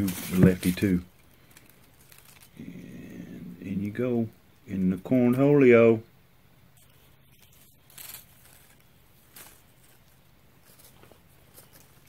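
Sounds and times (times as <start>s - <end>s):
soft rustle of handling: 0.0s - 2.6s, 6.7s - 12.0s.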